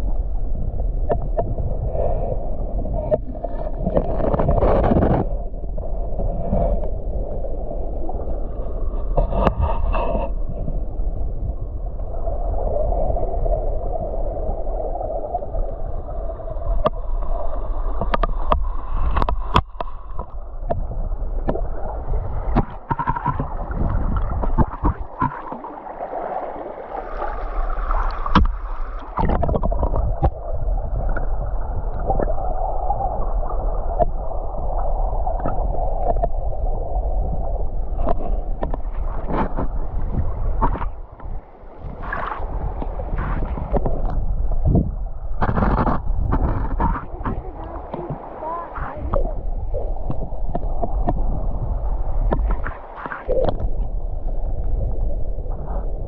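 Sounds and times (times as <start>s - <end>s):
steady low rumble: 0.0s - 56.0s
river water gurgling underwater: 11.5s - 56.0s.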